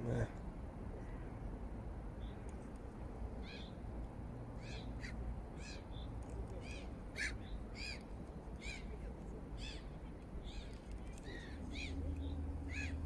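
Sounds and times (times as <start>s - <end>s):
low background rumble: 0.0s - 13.0s
bird calling: 9.6s - 13.0s.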